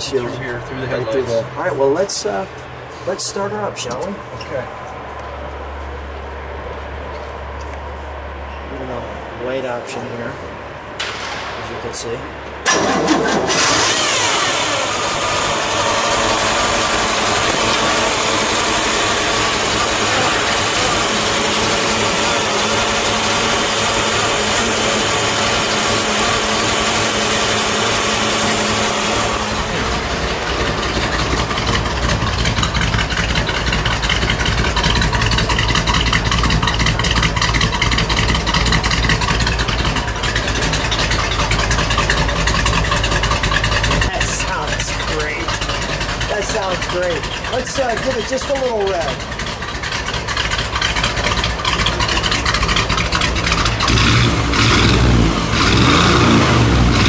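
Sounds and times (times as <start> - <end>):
car engine idling: 11.8 - 57.0.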